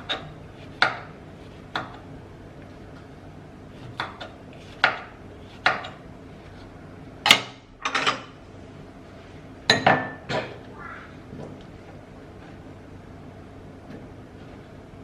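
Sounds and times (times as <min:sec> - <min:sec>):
kitchenware knocking and clattering: 0:07.3 - 0:08.3, 0:09.7 - 0:10.6.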